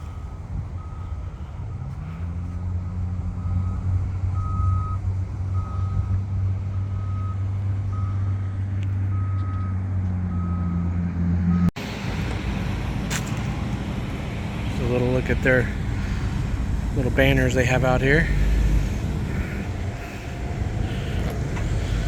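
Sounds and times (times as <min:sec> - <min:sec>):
heavy vehicle engine drone: 0:00.0 - 0:22.0
reversing alarm beeps: 0:00.2 - 0:06.2, 0:06.9 - 0:08.4, 0:09.0 - 0:10.9.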